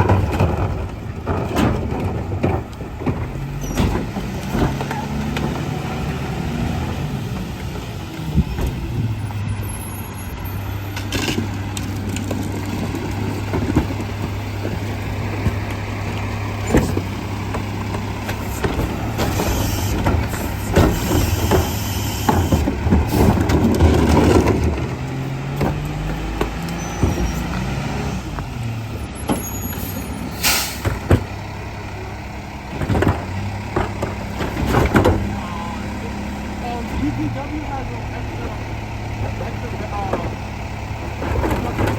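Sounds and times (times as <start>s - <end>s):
knocks and clatters: 0.0s - 5.8s, 10.9s - 27.7s, 32.7s - 35.4s, 41.1s - 41.9s
garbage truck engine: 0.0s - 41.9s.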